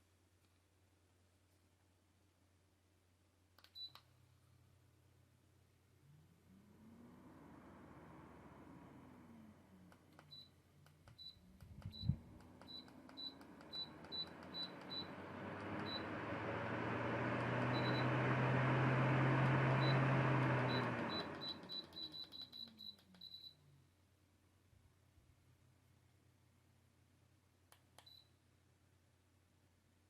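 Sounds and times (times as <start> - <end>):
low motor hum: 6.0 - 10.4, 11.2 - 22.2
fan button beeps: 11.1 - 16.2, 17.4 - 18.3, 19.4 - 23.5.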